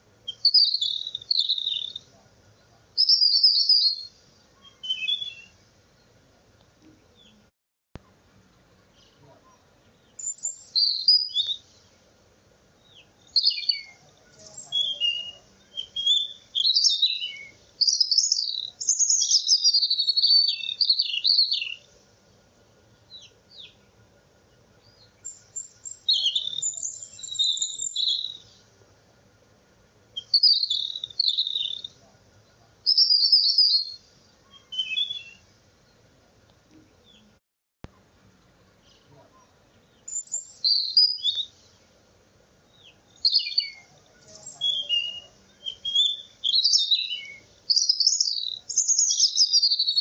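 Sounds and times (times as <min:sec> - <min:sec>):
birds chirping and singing: 0:00.3 - 0:02.1, 0:03.0 - 0:06.1, 0:09.9 - 0:12.0, 0:12.8 - 0:21.9, 0:23.1 - 0:28.6, 0:30.2 - 0:32.0, 0:32.9 - 0:36.0, 0:39.8 - 0:41.6, 0:42.8 - 0:50.0.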